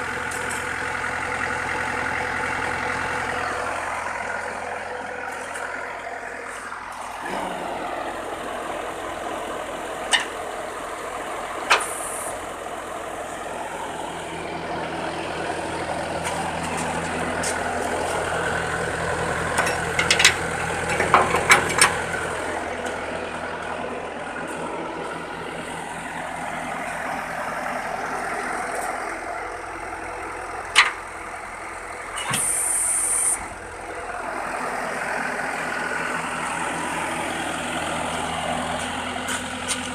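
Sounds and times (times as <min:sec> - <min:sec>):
diesel truck engine idling: 0:00.0 - 0:39.9
metallic clanks: 0:19.5 - 0:22.0.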